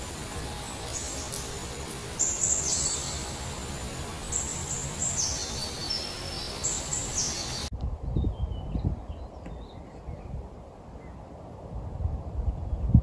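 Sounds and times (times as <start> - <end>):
background hiss: 0.0 - 7.7
bird whistled calls: 2.2 - 3.4, 4.2 - 7.7.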